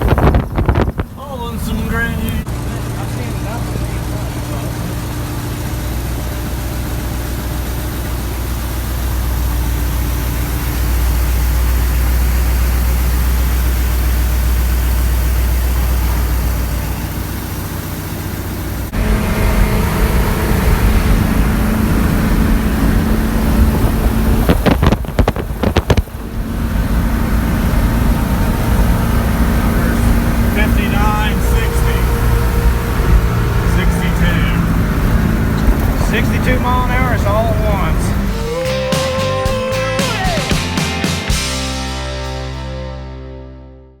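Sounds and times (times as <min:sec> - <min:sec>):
farm machinery engine running: 0:00.0 - 0:43.0
engine steady hum: 0:00.0 - 0:43.3.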